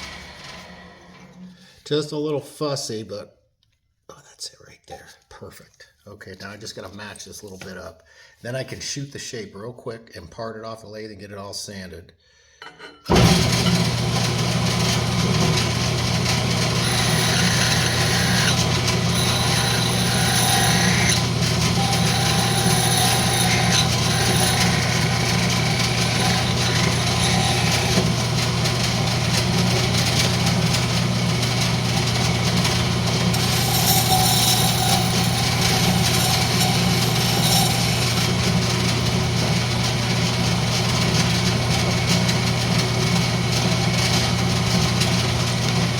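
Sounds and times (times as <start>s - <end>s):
wood lathe humming: 0.0s - 1.6s, 13.1s - 45.9s
turning tool cutting wood: 0.0s - 1.7s, 13.1s - 45.9s.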